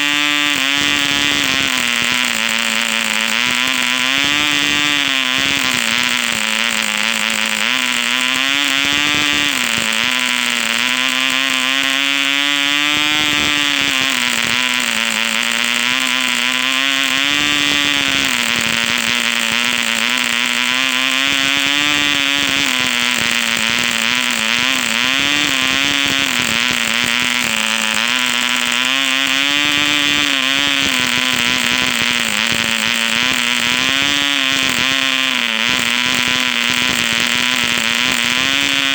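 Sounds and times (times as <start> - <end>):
model engine running at high speed: 0.0 - 38.9.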